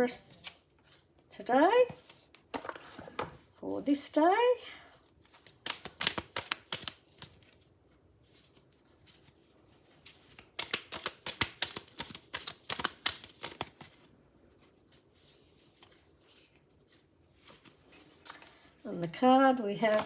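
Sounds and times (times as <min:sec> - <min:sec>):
cards being shuffled: 0:05.2 - 0:07.6, 0:10.1 - 0:14.1, 0:19.6 - 0:20.0
handling of card deck: 0:05.2 - 0:07.6, 0:10.1 - 0:14.0, 0:19.8 - 0:20.0.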